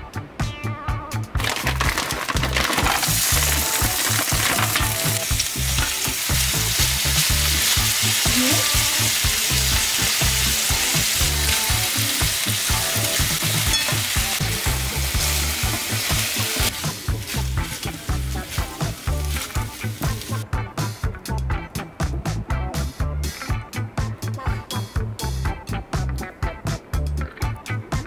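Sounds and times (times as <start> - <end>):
chicken sizzling in a frying pan: 1.5 - 20.4.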